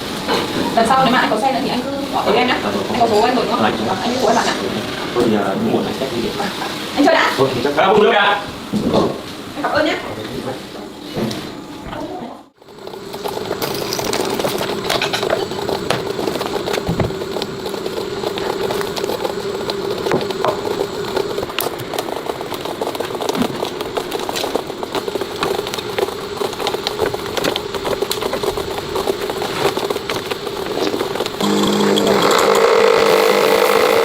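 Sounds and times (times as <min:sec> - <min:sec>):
clicks and crackles: 0:12.6 - 0:31.6
machine humming: 0:12.6 - 0:34.0
loud pitched machine sound: 0:31.4 - 0:34.0.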